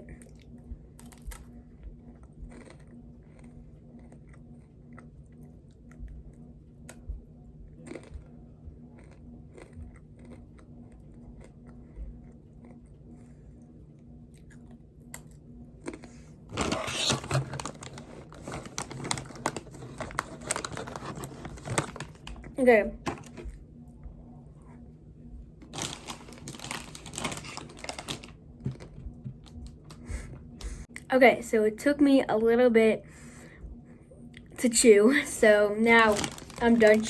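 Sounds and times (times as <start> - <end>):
faint steady hum: 0.0 - 37.0
person chewing crunchy snack: 1.0 - 6.0, 7.8 - 13.3.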